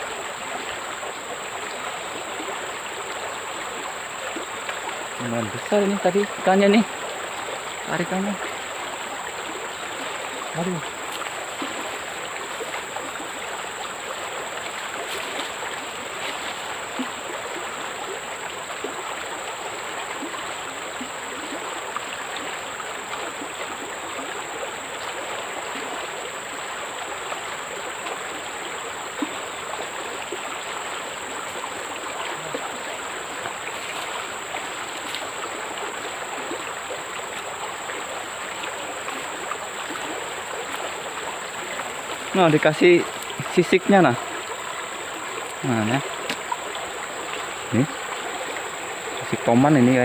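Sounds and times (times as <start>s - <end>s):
faint clicks: 46.2s - 46.5s.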